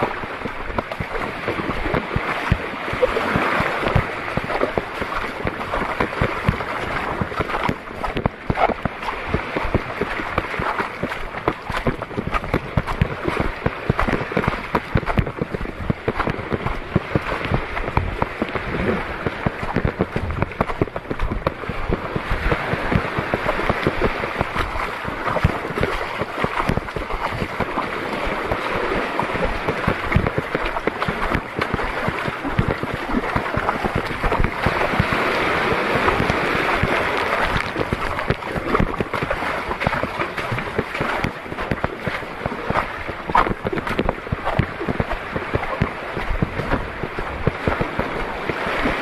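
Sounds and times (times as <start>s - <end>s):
rushing water: 0.0s - 49.0s
wind buffeting microphone: 0.0s - 49.0s.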